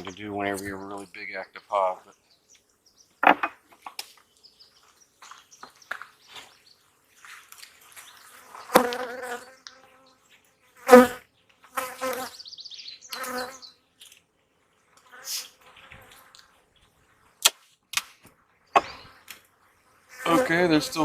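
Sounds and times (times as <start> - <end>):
honeybees buzzing: 8.2 - 10.2, 11.8 - 13.7, 20.1 - 21.0.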